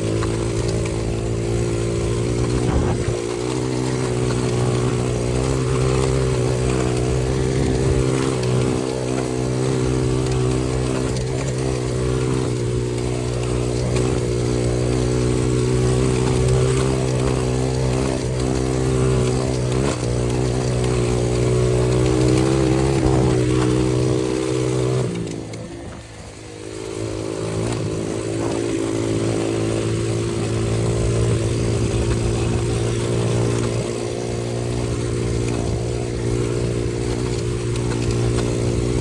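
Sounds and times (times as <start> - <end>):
dirt bike engine running: 0.0 - 39.0.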